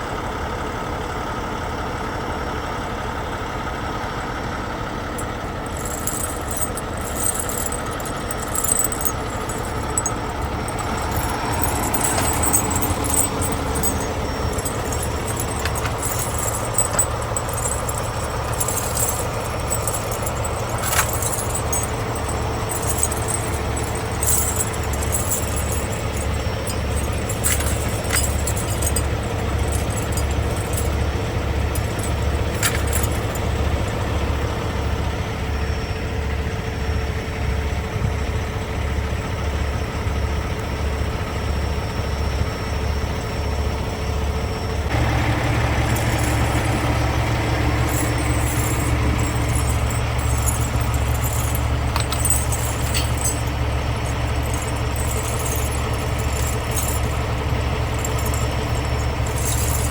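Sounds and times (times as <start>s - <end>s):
diesel engine drone from cab: 0.0s - 59.9s
light clicks and rattles: 5.7s - 34.0s, 45.9s - 59.9s.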